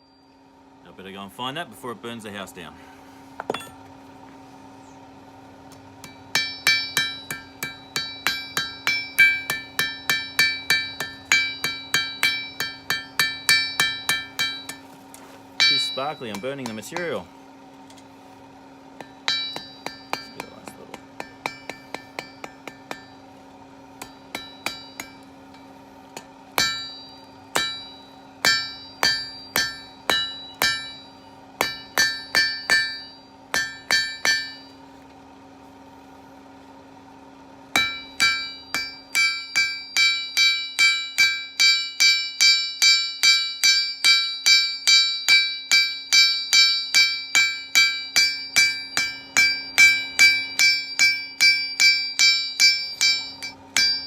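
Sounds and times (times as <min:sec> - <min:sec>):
steady low hum: 0:00.0 - 0:54.0
hammer striking steel on anvil: 0:03.4 - 0:03.8, 0:06.0 - 0:15.0, 0:15.6 - 0:17.3, 0:19.0 - 0:23.4, 0:24.0 - 0:34.8, 0:37.7 - 0:54.0.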